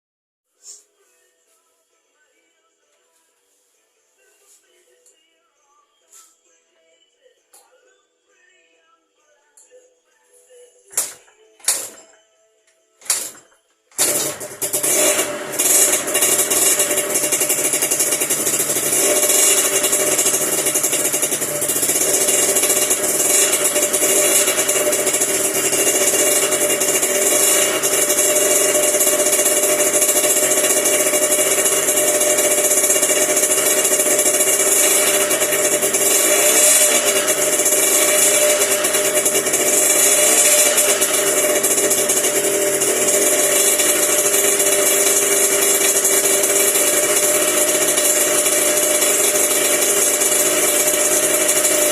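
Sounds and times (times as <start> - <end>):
two-stroke engine running: 10.9 - 12.0, 13.0 - 51.9.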